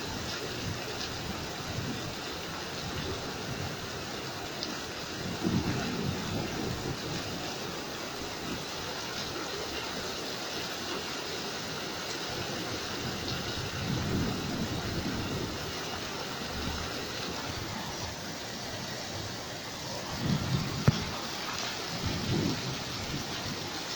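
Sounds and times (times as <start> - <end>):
heavy rain falling: 0.0 - 23.9
thunder rolling: 5.2 - 8.6, 13.0 - 23.9.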